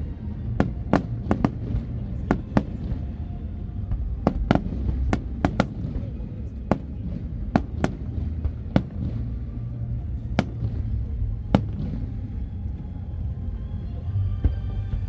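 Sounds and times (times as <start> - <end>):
fireworks shells bursting rumble: 10.3 - 12.5.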